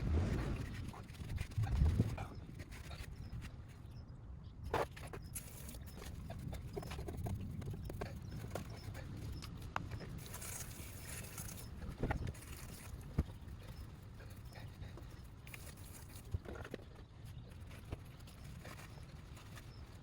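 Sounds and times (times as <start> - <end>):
low steady rumble: 0.0 - 2.4.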